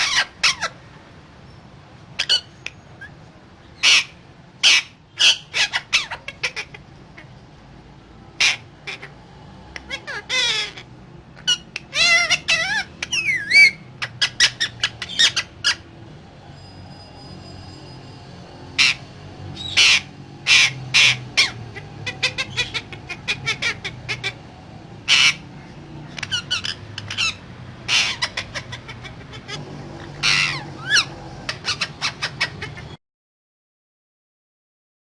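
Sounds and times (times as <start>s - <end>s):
parrot squawking: 0.0s - 0.8s, 2.2s - 7.4s, 8.3s - 9.2s, 9.8s - 16.0s, 18.7s - 33.0s.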